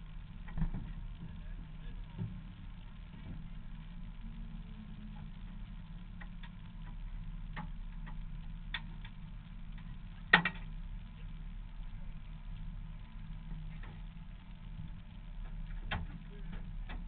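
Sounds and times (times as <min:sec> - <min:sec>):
sharp clicks and knocks: 0:06.2 - 0:10.7, 0:15.4 - 0:17.0.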